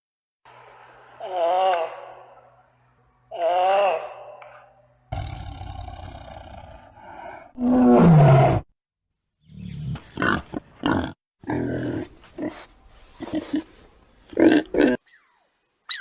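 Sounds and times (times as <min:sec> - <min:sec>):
big cat roaring and growling: 0:05.1 - 0:08.7
big cat grunting: 0:05.2 - 0:08.6.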